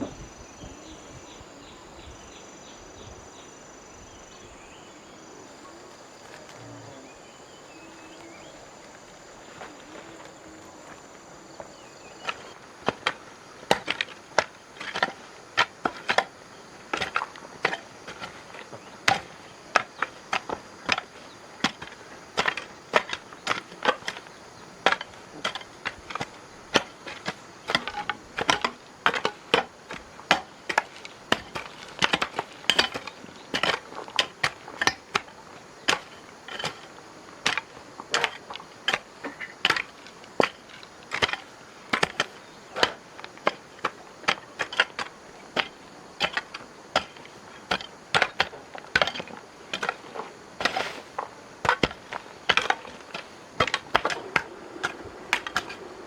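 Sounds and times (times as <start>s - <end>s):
tools knocking on wood: 16.9s - 35.3s, 44.2s - 56.0s.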